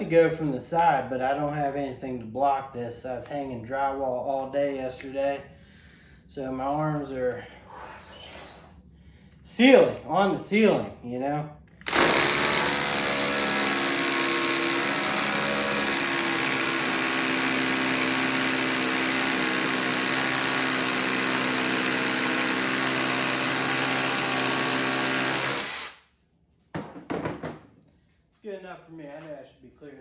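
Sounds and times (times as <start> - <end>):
hammer drill drilling: 11.8 - 26.0.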